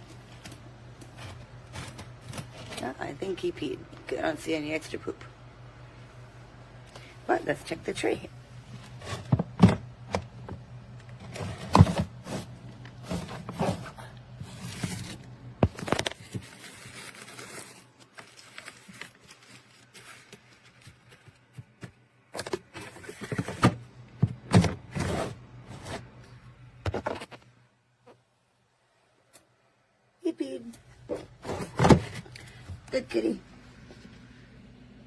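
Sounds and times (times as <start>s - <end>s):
low steady hum: 0.0s - 35.0s
plastic tray scraping and knocking: 8.7s - 15.9s, 22.9s - 26.1s, 31.1s - 32.3s.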